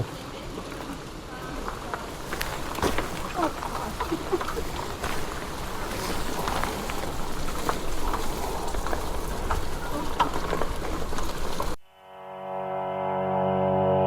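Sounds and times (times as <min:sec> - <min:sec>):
rain hissing: 0:00.0 - 0:11.8
sharp ticks of raindrops: 0:00.0 - 0:11.8
music: 0:11.9 - 0:14.0.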